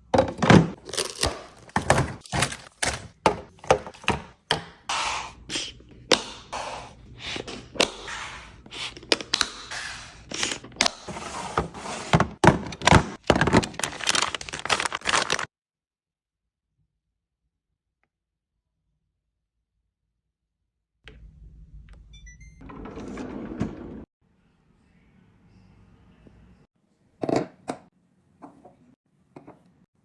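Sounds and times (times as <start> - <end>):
items set down knocking: 0.1 - 4.3, 10.7 - 14.0
packaging rustling: 12.4 - 15.5.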